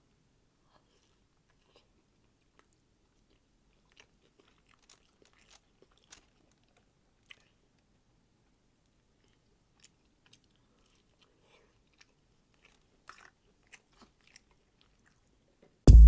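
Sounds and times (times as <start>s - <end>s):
chewing and biting food: 0.7s - 7.9s, 8.9s - 15.5s
small crunchy clicks: 4.0s - 7.5s.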